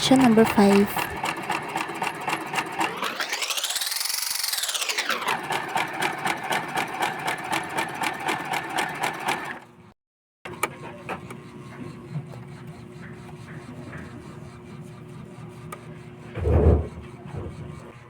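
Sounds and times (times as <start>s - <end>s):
sewing machine stitching: 0.0s - 9.6s.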